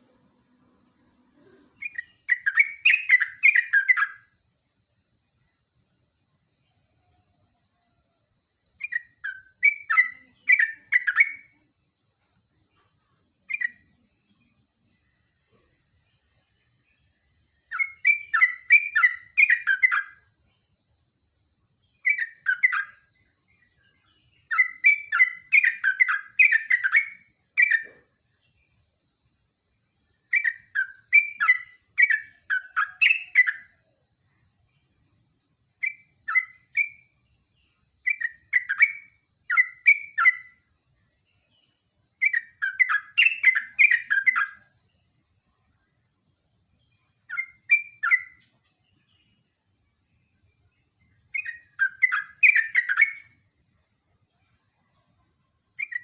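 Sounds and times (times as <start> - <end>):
bird chattering song: 1.5 - 4.3, 8.8 - 11.6, 17.7 - 20.2, 21.8 - 28.6, 30.3 - 33.8, 35.8 - 40.6, 41.5 - 44.7, 46.8 - 49.4, 51.3 - 53.4, 55.8 - 56.0.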